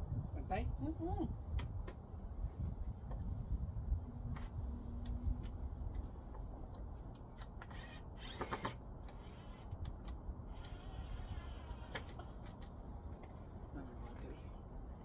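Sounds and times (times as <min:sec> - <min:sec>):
cordless drill whirring: 0:07.4 - 0:12.5.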